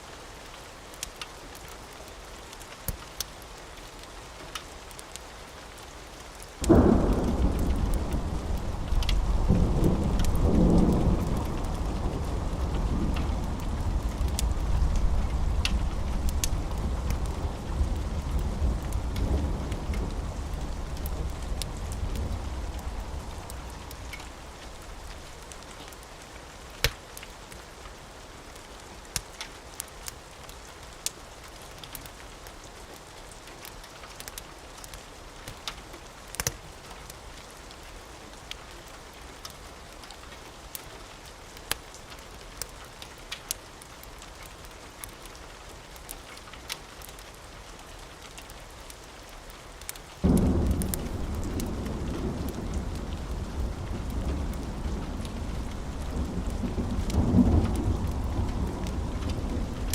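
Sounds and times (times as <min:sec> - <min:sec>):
steady rain: 0:00.0 - 0:59.9
wood fire crackling and popping: 0:00.9 - 0:03.6, 0:04.5 - 0:26.1, 0:26.7 - 0:37.2, 0:39.4 - 0:59.9
low thunder rumble: 0:06.6 - 0:25.6, 0:50.2 - 0:59.9.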